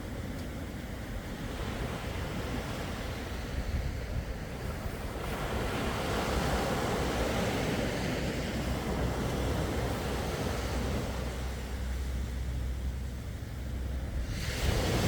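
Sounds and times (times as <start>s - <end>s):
sea waves washing onto shore: 0.0s - 15.0s
steady low rumble: 7.9s - 15.0s.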